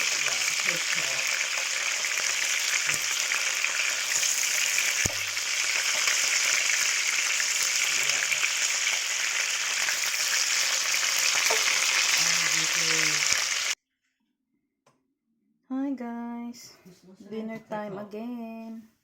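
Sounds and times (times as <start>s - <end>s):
food sizzling in a pan: 0.0s - 13.8s.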